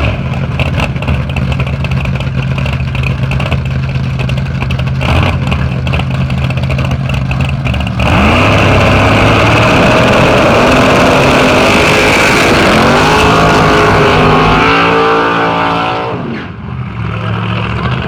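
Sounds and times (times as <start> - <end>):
race car engine accelerating: 7.6 - 18.0.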